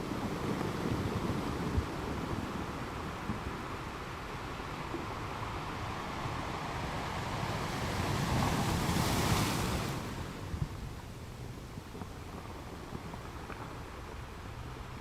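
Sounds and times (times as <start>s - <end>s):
ocean wave breaking: 4.7s - 10.5s.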